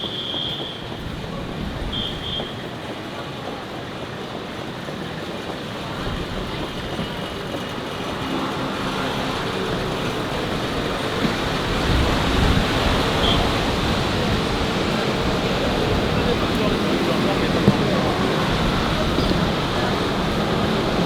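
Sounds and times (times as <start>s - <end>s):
vehicle engine and tyre noise: 0.0s - 21.0s.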